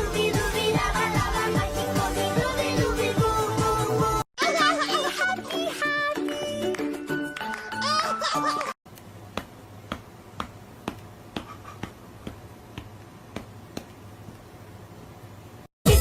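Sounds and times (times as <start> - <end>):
music: 0.0 - 8.7.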